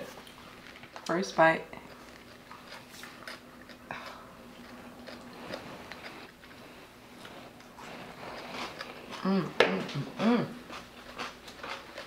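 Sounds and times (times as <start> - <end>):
coleslaw crunching: 10.6 - 12.0.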